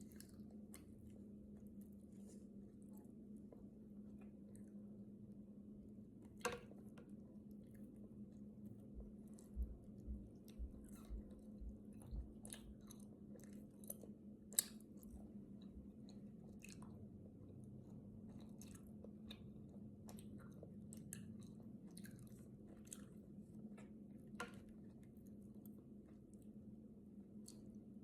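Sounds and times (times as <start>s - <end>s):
wet chewing and mouth smacks: 0.0s - 2.0s, 7.6s - 26.6s, 27.3s - 27.8s
faint low hum: 0.0s - 28.0s.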